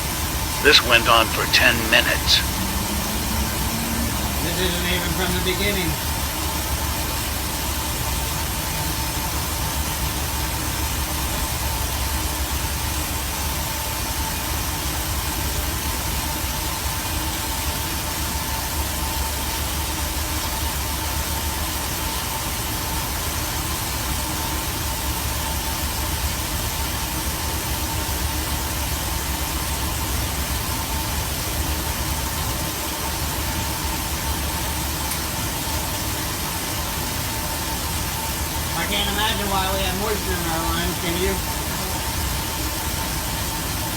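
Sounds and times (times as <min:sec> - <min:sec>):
low hum: 0:00.5 - 0:06.4.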